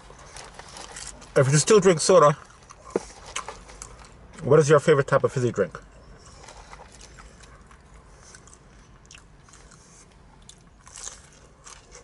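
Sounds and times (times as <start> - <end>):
chewing fried fish: 2.4 - 4.2, 6.2 - 12.0.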